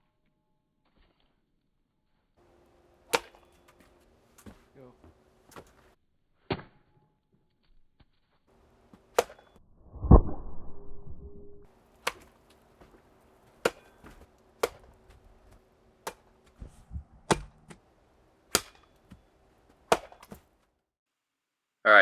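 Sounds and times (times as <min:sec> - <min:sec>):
sharp chopping strikes: 0:03.1 - 0:04.6, 0:09.1 - 0:09.6, 0:13.6 - 0:15.2, 0:16.0 - 0:17.8, 0:18.5 - 0:19.2, 0:19.9 - 0:20.4.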